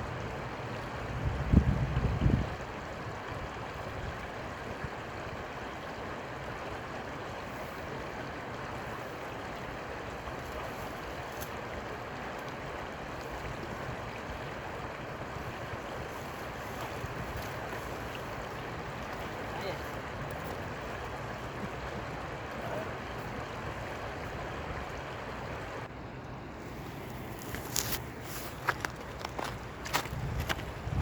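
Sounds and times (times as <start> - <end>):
river water rushing: 2.6 - 31.0.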